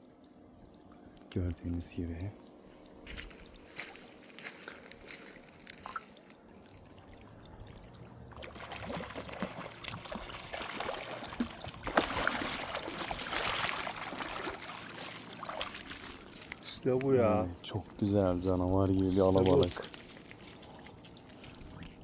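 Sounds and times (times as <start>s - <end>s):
fish splashing in water: 5.8s - 22.0s.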